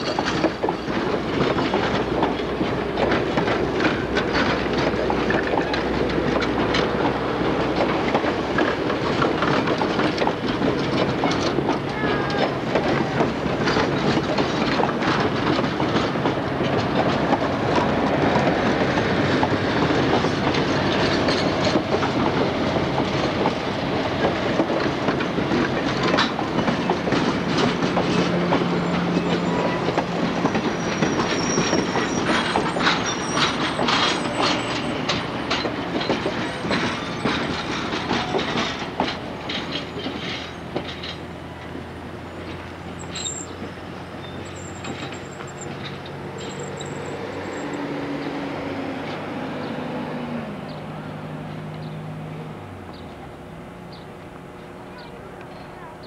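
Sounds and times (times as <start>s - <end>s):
wheels clacking over rail joints: 0.0s - 56.0s
high wheel squeals: 28.1s - 38.8s, 39.8s - 48.4s.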